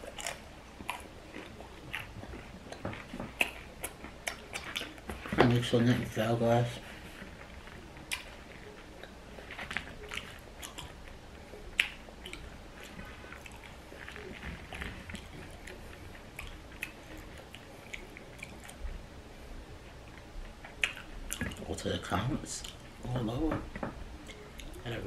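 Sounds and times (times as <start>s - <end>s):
chewing mouth clicks and smacks: 0.0s - 5.3s, 7.6s - 18.9s, 20.1s - 21.7s, 24.2s - 25.0s.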